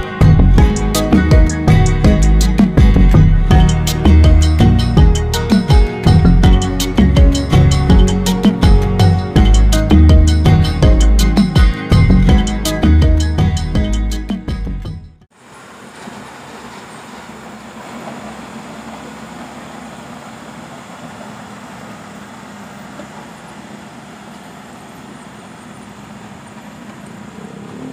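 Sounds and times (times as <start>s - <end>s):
music: 0.0s - 15.3s
combine harvester running: 15.3s - 27.9s.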